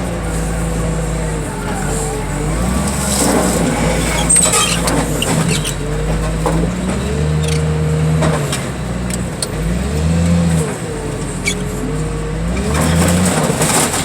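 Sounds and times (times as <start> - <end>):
heavy diesel machinery running: 0.0 - 14.0
hydraulic whine: 0.0 - 14.0.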